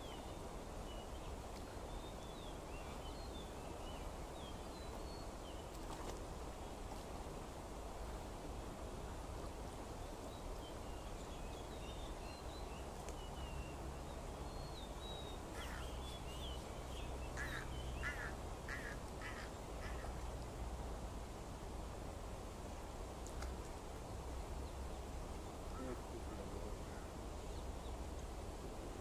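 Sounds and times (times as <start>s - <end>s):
outdoor background noise: 0.0s - 29.0s
harsh bird calls: 15.2s - 20.2s.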